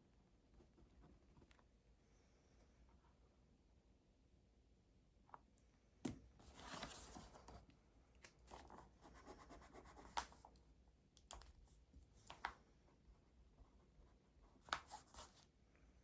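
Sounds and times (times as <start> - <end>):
pen scratching on paper: 9.0 - 10.4.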